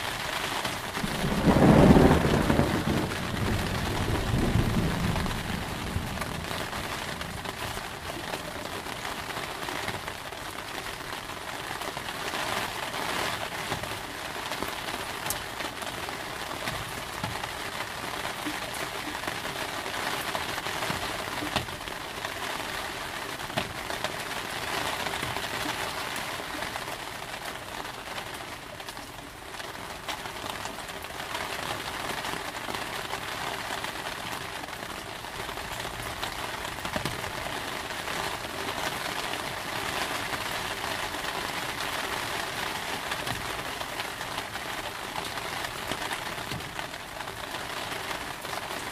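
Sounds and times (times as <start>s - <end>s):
steady rain falling: 0.0s - 48.9s
low thunder rumble: 0.8s - 8.5s.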